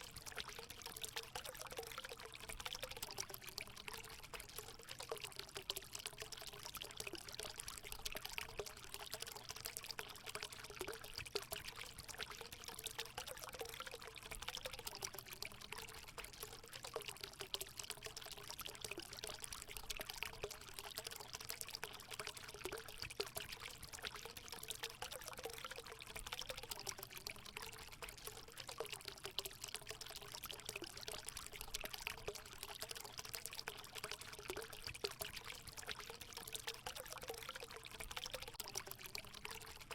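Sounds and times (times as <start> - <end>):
water pouring into pool: 0.0 - 39.9.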